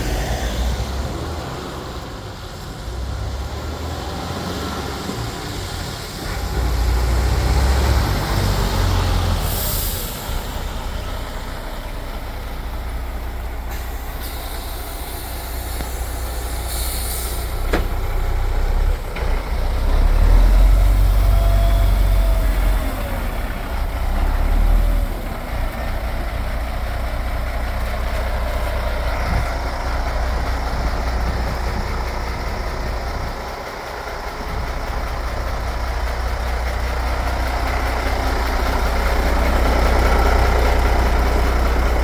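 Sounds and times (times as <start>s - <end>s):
truck diesel engine rumbling: 0.0s - 42.0s
air brake hiss: 9.4s - 10.8s, 13.7s - 18.0s.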